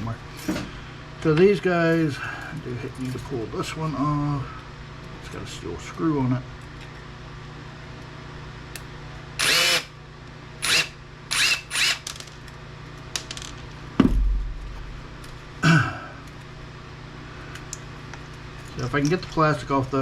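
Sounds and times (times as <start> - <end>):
cordless drill running: 9.4 - 10.0, 10.6 - 12.1
low thud: 14.0 - 14.9.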